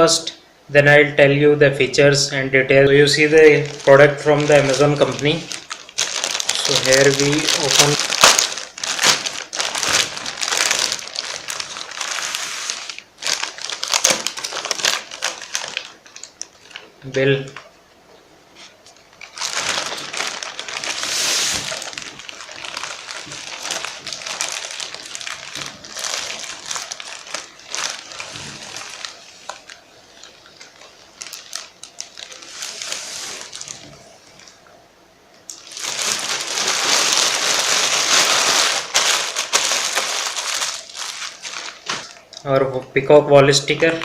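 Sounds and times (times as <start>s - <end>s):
packaging crinkling and rustling: 3.0s - 17.7s, 18.5s - 34.6s, 35.5s - 42.4s, 43.6s - 44.0s.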